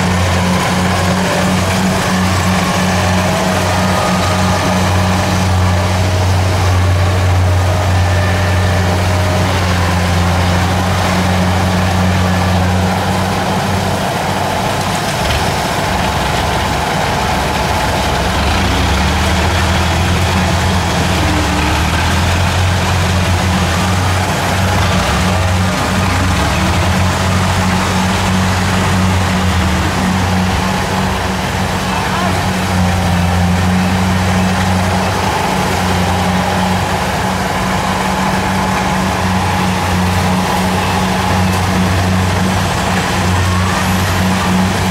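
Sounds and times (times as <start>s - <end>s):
diesel engine humming: 0.0s - 44.9s.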